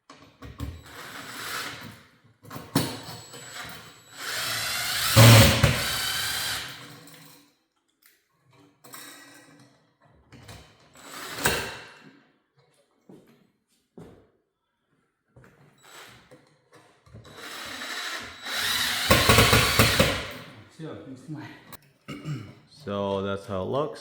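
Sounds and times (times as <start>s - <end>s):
cordless drill driving screws: 0.8s - 1.9s, 3.4s - 7.0s, 11.0s - 11.7s, 17.3s - 20.5s.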